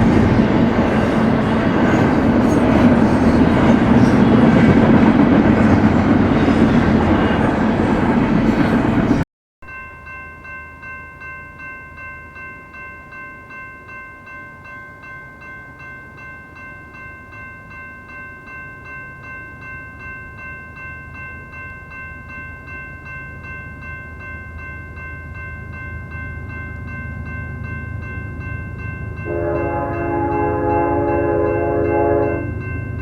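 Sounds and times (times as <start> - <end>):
freight train rumble: 0.0 - 9.2, 19.2 - 33.0
railroad crossing bell ringing: 0.0 - 33.0.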